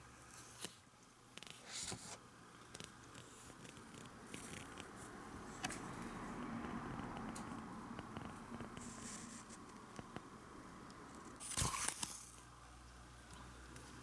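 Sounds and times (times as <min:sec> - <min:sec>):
rustling scrape: 0:08.8 - 0:09.6.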